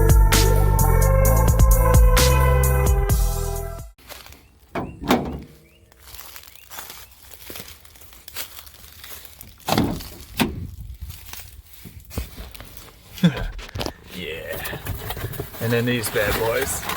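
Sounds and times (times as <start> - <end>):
dull knocks and thunks: 4.7 - 5.7, 9.6 - 10.8.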